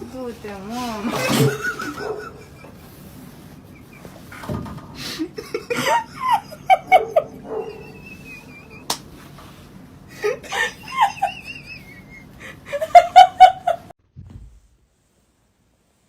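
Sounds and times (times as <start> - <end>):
person laughing: 1.2 - 3.1, 5.0 - 9.0, 10.1 - 13.9.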